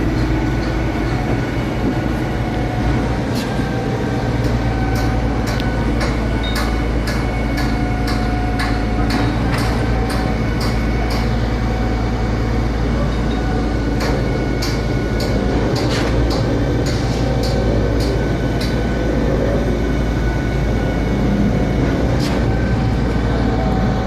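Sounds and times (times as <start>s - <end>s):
diesel engine droning: 0.0s - 24.0s.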